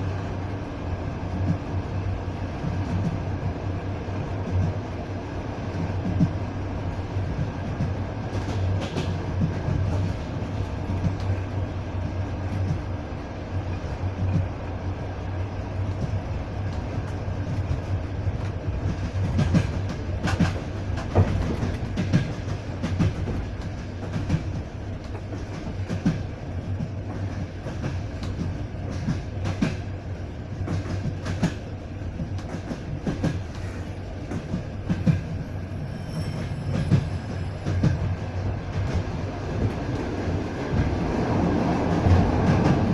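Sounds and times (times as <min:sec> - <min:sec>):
train wheels rumbling on rails: 0:00.0 - 0:42.9
clicks and knocks from track: 0:07.4 - 0:11.4, 0:15.9 - 0:29.9, 0:30.5 - 0:41.0.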